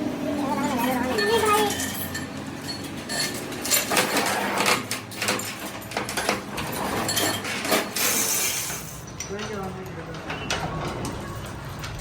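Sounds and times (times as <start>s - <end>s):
metal tools clinking: 0.4s - 9.6s.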